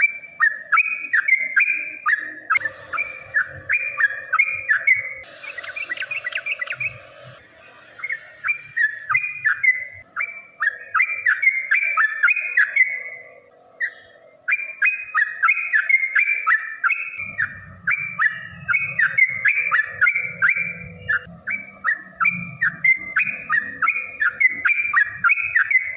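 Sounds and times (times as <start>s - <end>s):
bird singing bubbling chirps: 0.0s - 25.9s.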